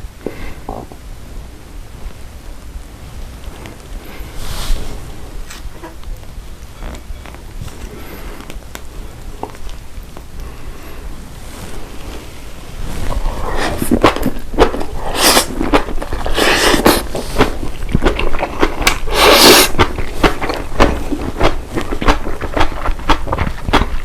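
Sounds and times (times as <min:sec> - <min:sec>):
slurping and mouth noise: 0:11.5 - 0:24.0
wet chewing clicks: 0:13.4 - 0:24.0.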